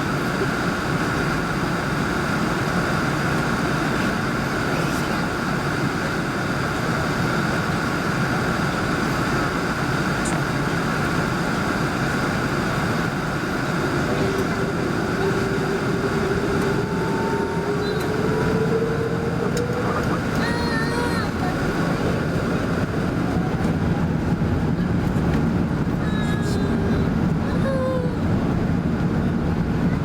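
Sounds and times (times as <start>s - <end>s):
faint rising whine: 0.0s - 28.9s
airplane cabin engine rush: 0.0s - 30.0s.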